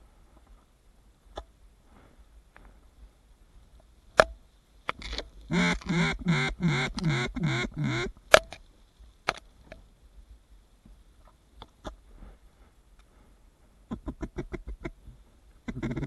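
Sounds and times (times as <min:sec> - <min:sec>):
sharp clicks: 0:04.2 - 0:07.4
duck quacking: 0:05.5 - 0:08.1.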